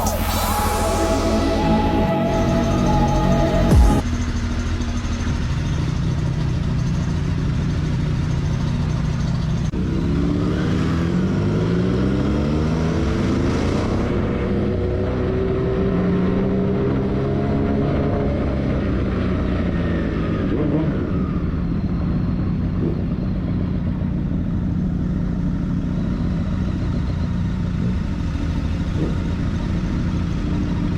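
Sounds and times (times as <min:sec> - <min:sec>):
vehicle engine running: 0:00.0 - 0:10.4, 0:18.6 - 0:30.9.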